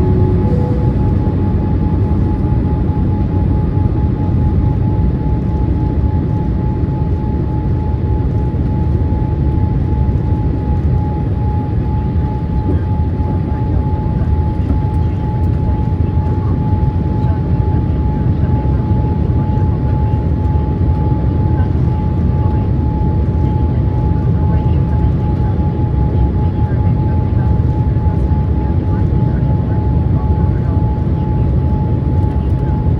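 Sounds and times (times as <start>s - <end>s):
mid-pitched whine: 0.0s - 6.5s
rumble of engines and airflow: 0.0s - 32.9s.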